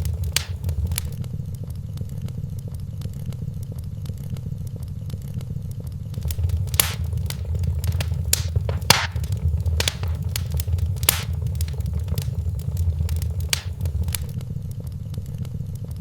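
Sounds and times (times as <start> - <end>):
sharp pops: 0.0 - 1.2, 6.2 - 14.3
wood fire crackling: 0.0 - 1.2, 6.2 - 14.4
low rumble: 6.2 - 14.3.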